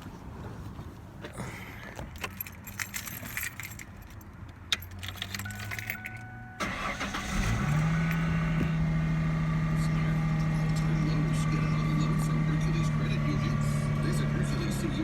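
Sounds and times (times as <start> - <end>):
engine cranking and catching: 1.7 - 15.0
keys jangling and clicking: 1.8 - 6.4
warning chime: 5.4 - 8.6.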